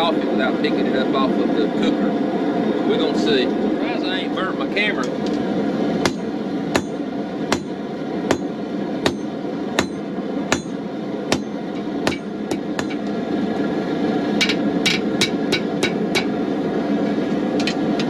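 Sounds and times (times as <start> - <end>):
gas forge burner: 0.0 - 18.0
hammer striking steel on anvil: 6.0 - 13.2, 14.4 - 16.4, 17.1 - 18.0.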